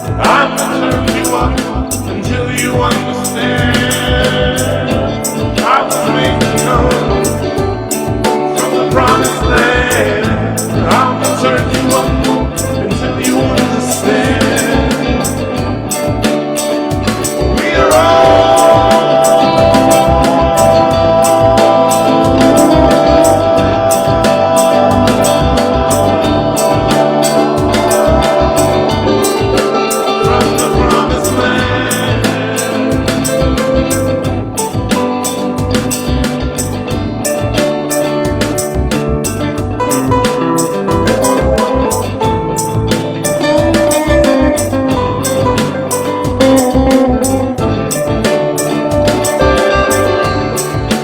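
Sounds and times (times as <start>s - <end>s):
band music: 0.0s - 51.0s
drums with cymbal hits: 0.0s - 51.0s
person singing: 0.0s - 51.0s
sustained instrument notes: 17.4s - 34.9s.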